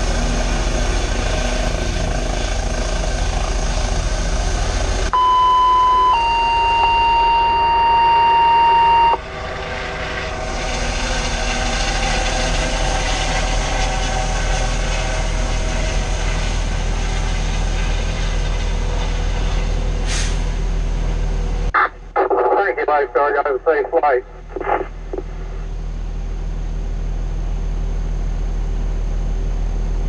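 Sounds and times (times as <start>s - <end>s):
helicopter turbine and rotor noise: 0.0s - 5.2s, 5.8s - 30.0s
high electronic beep: 5.2s - 9.2s.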